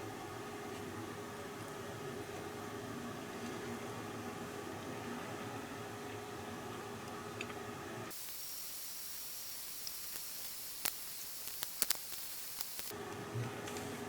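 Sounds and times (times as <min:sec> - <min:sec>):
sharp clicks: 0:08.1 - 0:12.9
steady high hiss: 0:08.1 - 0:12.9.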